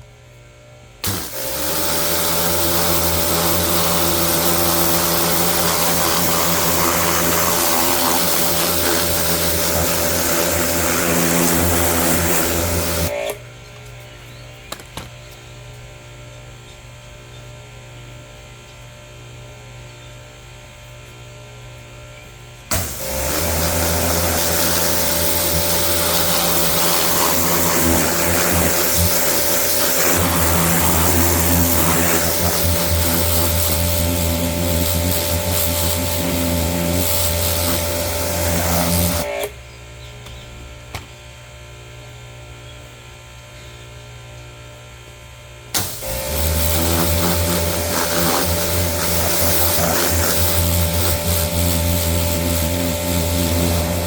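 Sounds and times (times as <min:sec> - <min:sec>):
water jet hissing: 0:01.0 - 0:13.1, 0:22.7 - 0:39.3, 0:45.8 - 0:54.0
pressure washer motor drone: 0:01.0 - 0:13.5, 0:22.7 - 0:39.7, 0:45.6 - 0:54.0.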